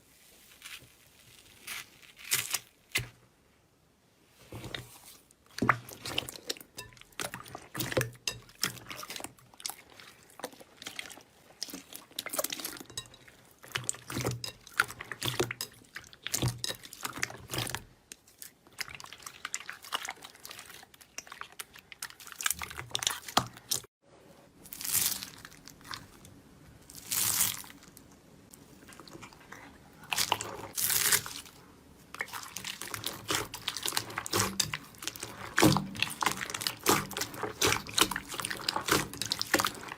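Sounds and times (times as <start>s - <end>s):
slime squishing: 4.4s - 23.9s, 24.7s - 39.9s
slime crackling: 32.2s - 39.9s.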